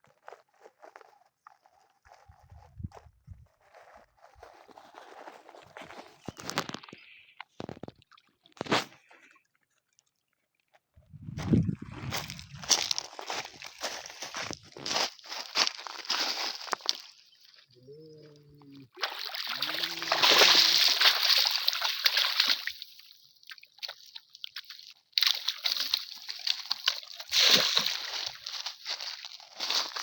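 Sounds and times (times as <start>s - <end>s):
water splashing and sloshing: 11.2s - 17.2s, 18.6s - 30.0s.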